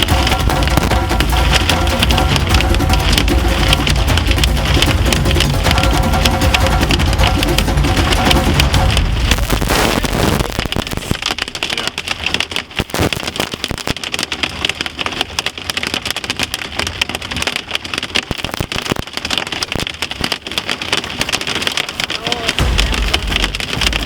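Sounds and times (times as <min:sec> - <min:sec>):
hail clattering on car roof: 0:00.0 - 0:24.0.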